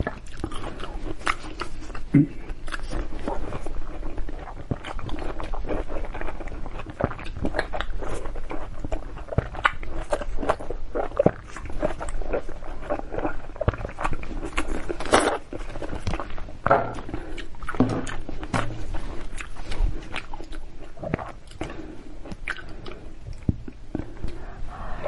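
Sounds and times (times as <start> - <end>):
crunching raw zucchini: 0.0 - 24.4.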